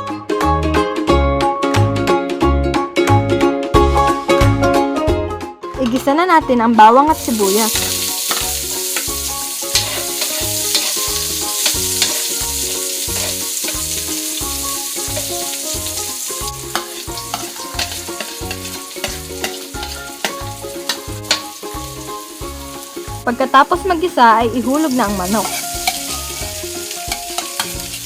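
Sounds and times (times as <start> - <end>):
background music with a beat: 0.0 - 23.4, 25.4 - 28.0
onions sizzling in hot oil: 5.6 - 28.0
utensil tapping on a pan: 7.7 - 12.4, 16.7 - 21.5, 25.4 - 27.8.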